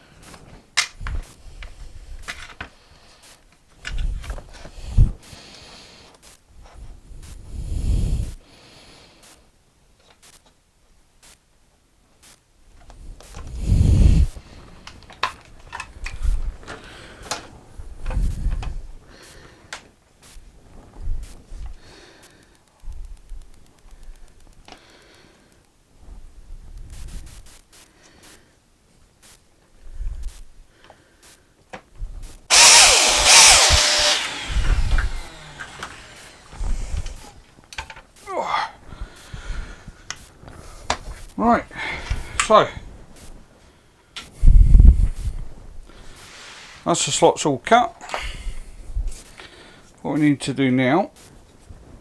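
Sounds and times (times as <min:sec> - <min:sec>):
biscuit joiner motor cutting: 0:32.5 - 0:37.4.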